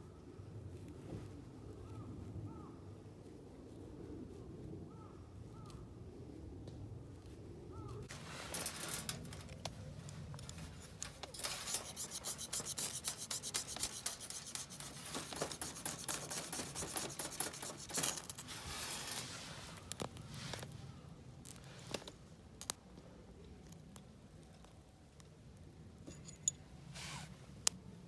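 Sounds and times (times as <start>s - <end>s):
fabric rubbing and rustling: 8.1s - 20.8s, 26.9s - 27.4s.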